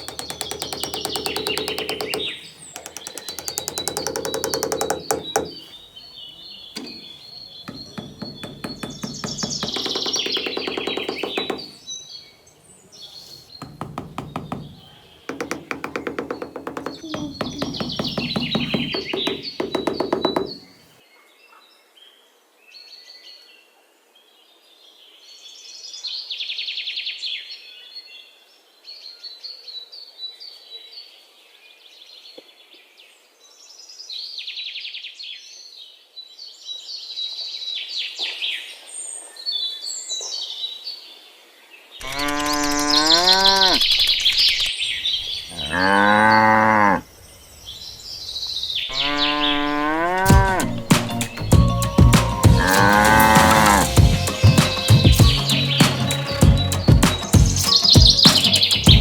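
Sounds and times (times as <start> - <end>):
birds chirping: 0.0 - 20.9, 42.1 - 59.0
cows mooing: 45.6 - 47.0.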